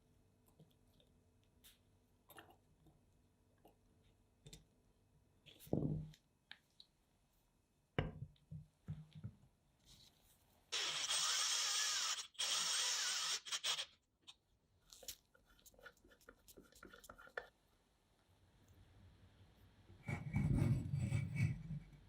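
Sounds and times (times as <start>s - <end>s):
pencil sharpener grinding: 10.7s - 14.0s.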